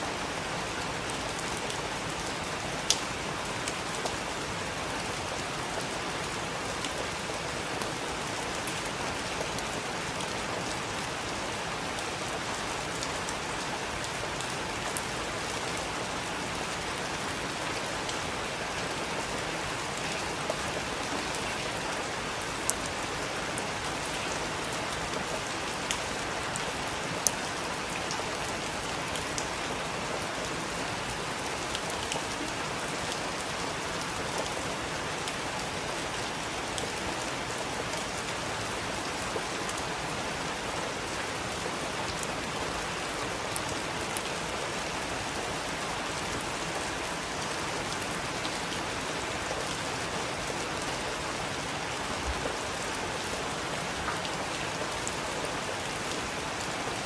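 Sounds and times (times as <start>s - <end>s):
heavy rain falling: 0.0s - 57.0s
close raindrop ticks: 2.9s - 4.2s.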